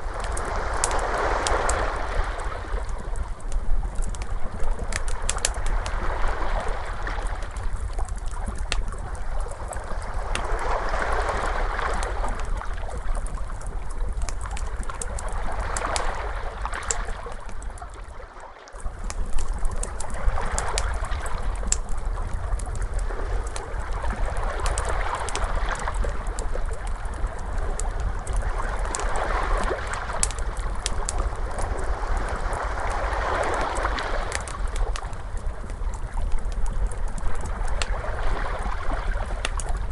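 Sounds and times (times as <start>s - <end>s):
ocean waves washing in: 0.0s - 3.1s, 9.7s - 12.6s, 28.5s - 35.2s
wood fire crackling: 0.0s - 18.0s, 18.7s - 39.9s
steady low rumble: 18.8s - 39.9s.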